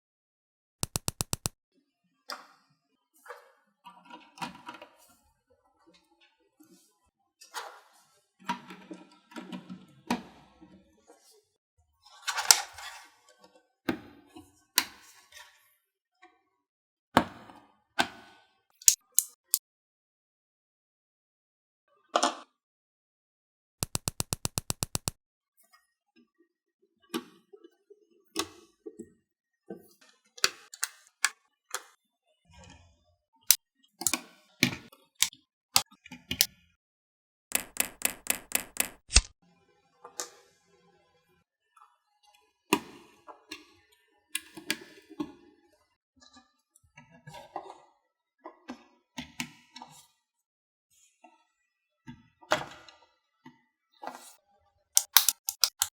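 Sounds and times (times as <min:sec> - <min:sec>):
plastic bricks clicking together: 0:00.8 - 0:01.5, 0:23.8 - 0:25.1, 0:37.5 - 0:39.3, 0:55.0 - 0:55.9.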